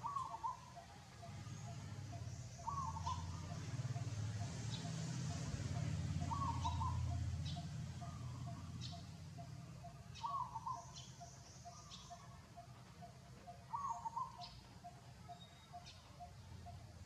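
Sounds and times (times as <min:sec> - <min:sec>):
faint high chirps: 0:05.7 - 0:17.0.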